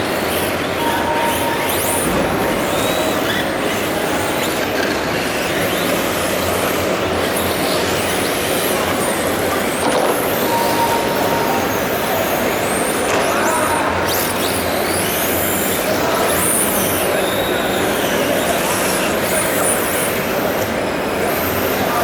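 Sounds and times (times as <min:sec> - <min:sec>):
loud steady din: 0:00.7 - 0:04.4.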